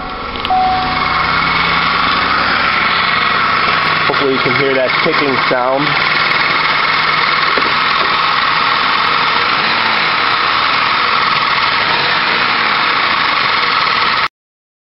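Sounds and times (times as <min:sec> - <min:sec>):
car engine idling: 0:00.0 - 0:14.3
engine ticking: 0:00.0 - 0:14.3.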